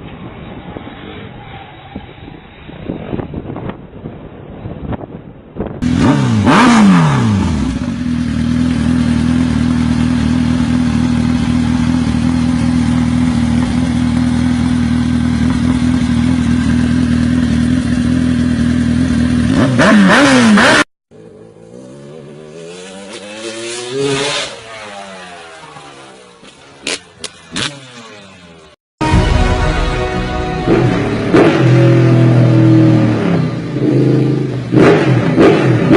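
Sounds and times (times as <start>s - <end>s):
motorcycle engine running: 5.8s - 21.4s.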